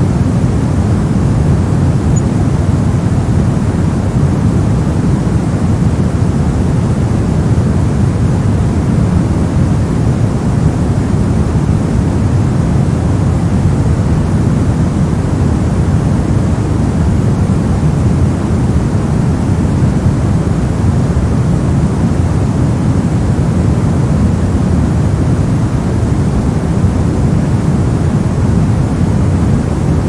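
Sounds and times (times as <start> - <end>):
steady white noise: 0.0 - 30.0.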